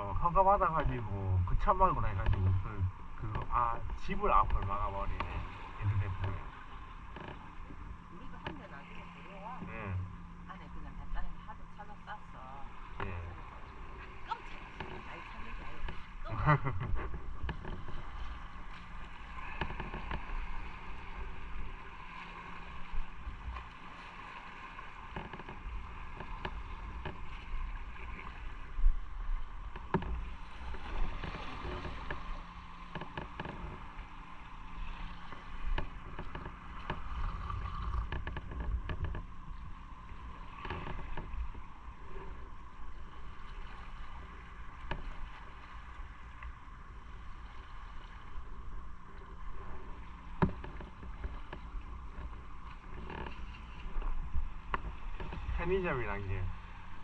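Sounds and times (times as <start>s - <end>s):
small knocks: 29.7s - 34.0s, 35.3s - 39.4s, 50.3s - 55.6s.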